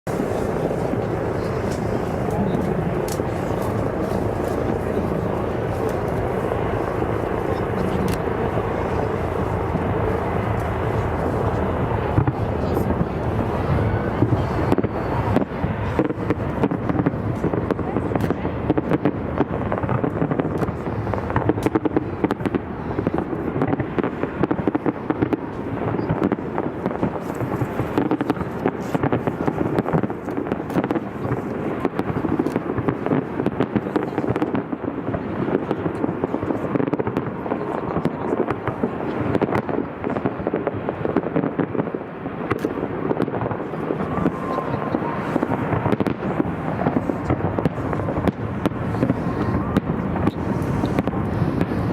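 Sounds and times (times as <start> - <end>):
continuous rumbling: 0.0 - 51.9
fireworks bangs and crackles: 0.0 - 51.9.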